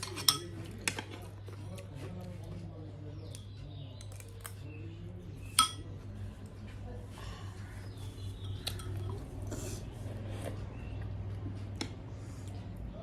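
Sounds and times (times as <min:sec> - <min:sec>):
metal spoon clinking on dish: 0:00.0 - 0:01.0, 0:05.4 - 0:05.9, 0:08.2 - 0:09.2
cutlery tapping: 0:00.0 - 0:01.1, 0:05.5 - 0:05.9
steady low hum: 0:04.6 - 0:13.0.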